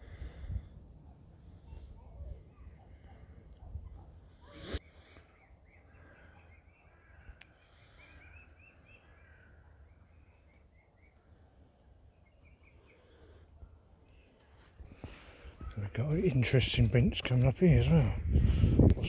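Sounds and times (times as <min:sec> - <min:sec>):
small birds chirping: 0:00.0 - 0:19.0
steady low rumble: 0:15.8 - 0:19.0.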